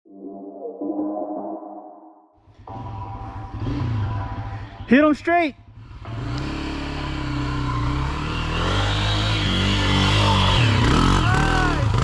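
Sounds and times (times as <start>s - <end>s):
dirt bike engine accelerating: 2.5s - 12.0s.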